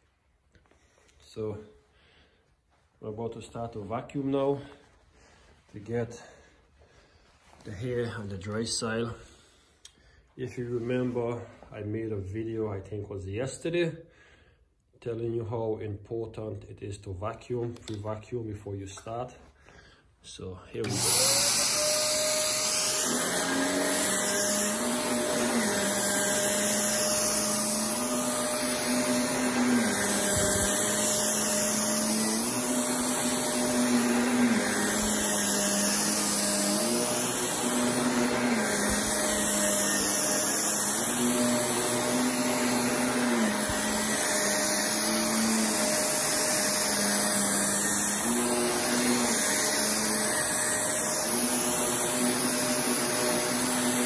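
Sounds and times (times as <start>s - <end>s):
vacuum cleaner running: 20.8s - 54.0s.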